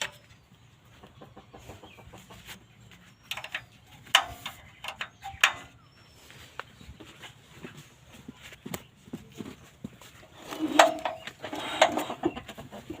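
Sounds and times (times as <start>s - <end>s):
sharp clicks and knocks: 3.2s - 5.8s.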